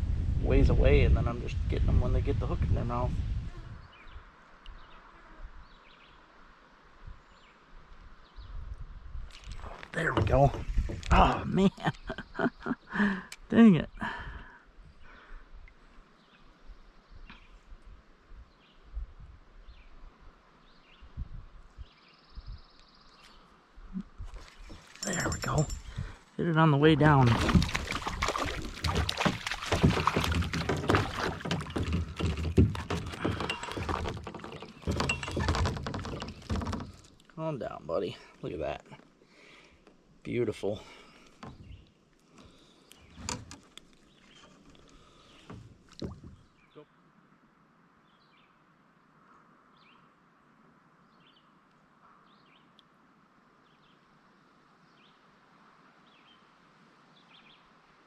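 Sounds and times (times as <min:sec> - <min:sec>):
thumps and knocks in a kayak: 0:09.3 - 0:12.4, 0:27.1 - 0:37.4, 0:41.3 - 0:41.8, 0:42.4 - 0:46.5
faint bird chirping: 0:19.6 - 0:26.0, 0:46.3 - 0:47.1.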